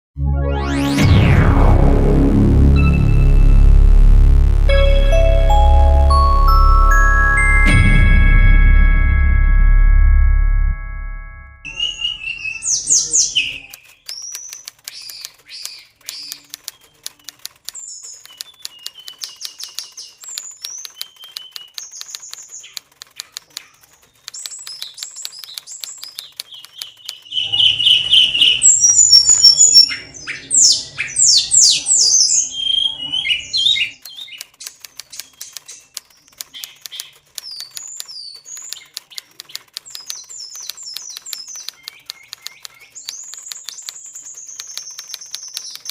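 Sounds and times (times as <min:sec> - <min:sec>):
faint rapid clicks: 0:13.4 - 0:29.8, 0:33.8 - 0:45.9.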